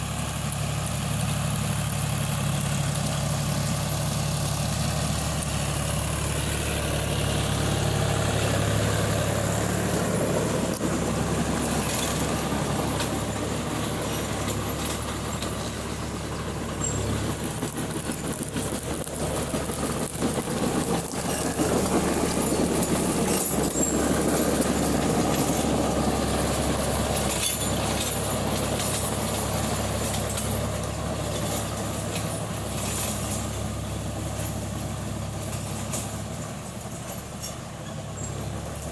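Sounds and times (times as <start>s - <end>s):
tractor engine running: 0.0s - 38.9s
rattling noise: 6.9s - 33.7s.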